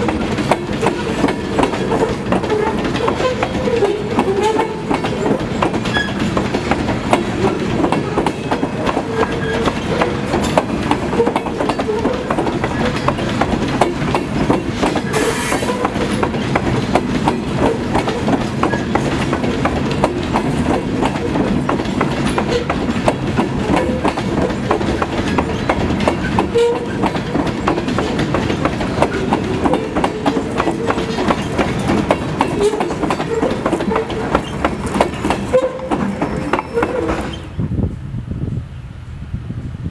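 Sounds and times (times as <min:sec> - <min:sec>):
rapid clicking over rail joints: 0:00.0 - 0:37.5
train wheels rumbling on rail: 0:00.0 - 0:39.9
wheel squeals: 0:00.7 - 0:06.4, 0:07.3 - 0:13.3, 0:17.6 - 0:19.1, 0:24.9 - 0:27.7, 0:29.0 - 0:37.6.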